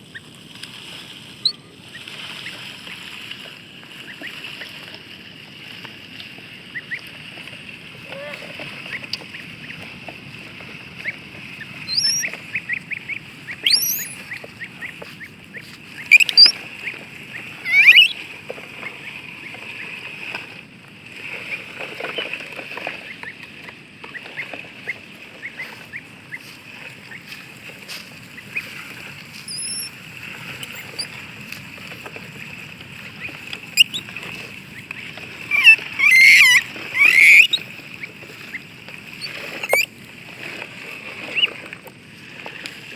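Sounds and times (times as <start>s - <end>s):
ducklings peeping: 10.9s - 18.3s, 24.1s - 31.3s, 33.0s - 39.9s, 41.2s - 41.6s.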